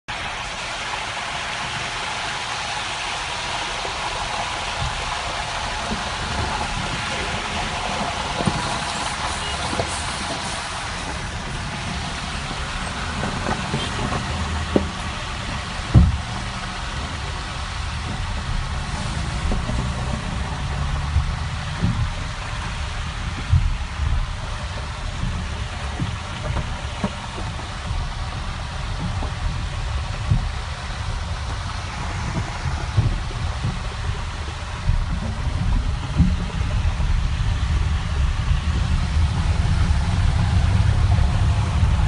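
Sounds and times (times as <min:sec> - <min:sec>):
heavy rain hissing: 0:00.1 - 0:42.0
short low thumps: 0:11.1 - 0:42.0.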